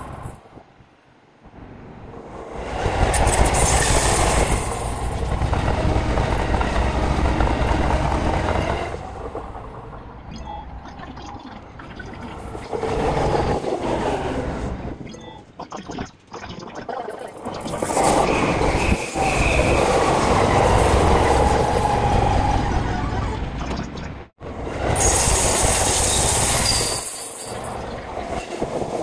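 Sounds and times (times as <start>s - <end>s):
electric trains passing on tracks: 0.0s - 15.6s, 17.4s - 23.6s, 24.4s - 29.0s
wheel and rail clatter: 2.2s - 10.7s.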